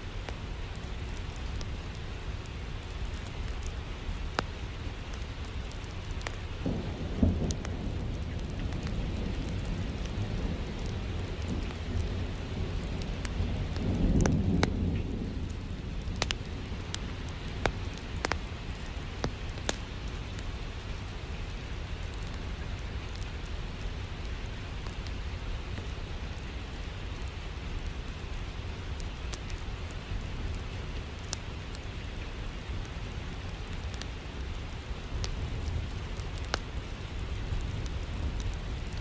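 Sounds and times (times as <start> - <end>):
log fire crackling: 0.0 - 39.0
rain: 0.0 - 39.0
thunder rolling: 6.6 - 16.9.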